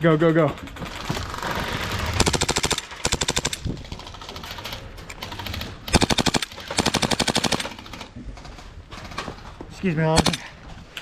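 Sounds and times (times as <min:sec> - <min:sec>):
airsoft guns firing full auto: 0:00.9 - 0:08.1, 0:10.1 - 0:10.5.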